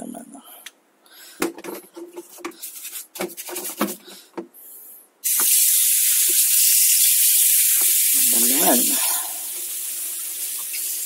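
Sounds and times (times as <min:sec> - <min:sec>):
liquid spray hissing: 0:05.2 - 0:10.8.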